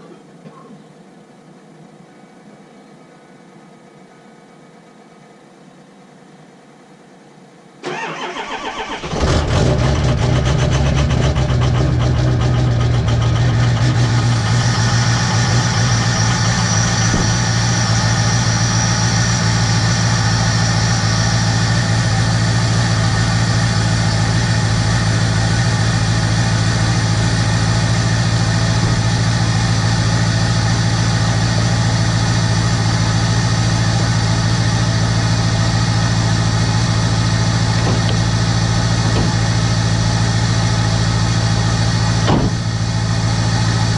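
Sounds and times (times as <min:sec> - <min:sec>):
diesel engine idling: 0:07.8 - 0:43.9
high whine: 0:09.5 - 0:43.9.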